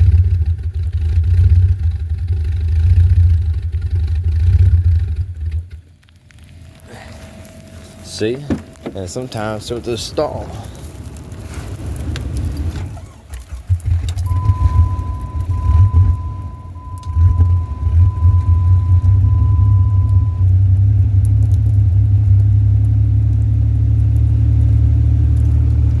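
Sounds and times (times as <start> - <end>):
car engine idling rough: 0.0 - 26.0
electronic warning chime: 7.0 - 10.2, 14.3 - 20.4.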